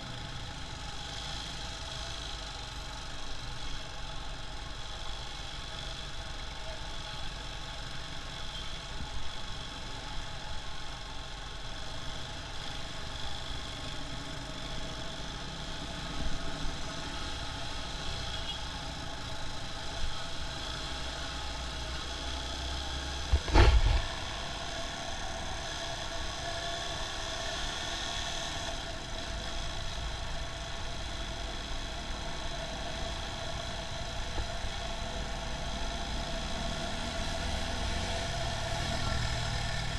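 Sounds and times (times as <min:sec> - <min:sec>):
motorcycle engine at low revs: 0:00.0 - 0:39.9
loud thump: 0:23.3 - 0:24.2.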